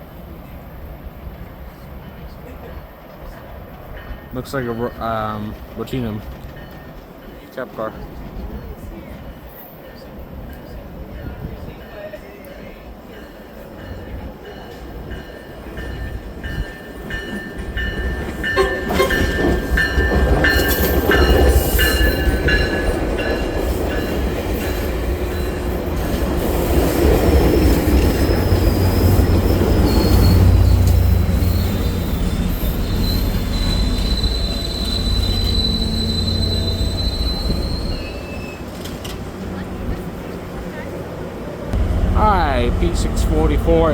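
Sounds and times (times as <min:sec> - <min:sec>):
train low rumble: 0:00.0 - 0:43.9
wheels and brakes squealing: 0:23.7 - 0:39.3.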